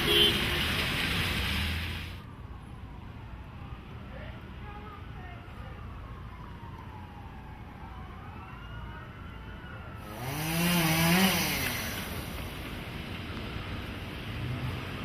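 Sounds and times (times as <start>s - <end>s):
distant siren wailing: 2.2s - 10.8s
engine passing: 10.0s - 15.0s.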